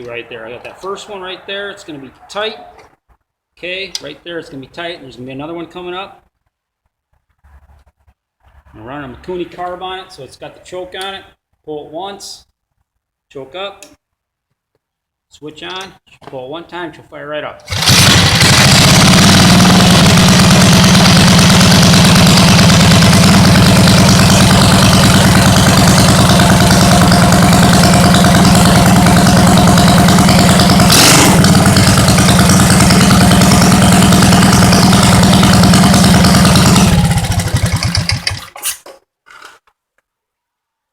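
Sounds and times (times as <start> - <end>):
small engine running: 17.7 - 38.4.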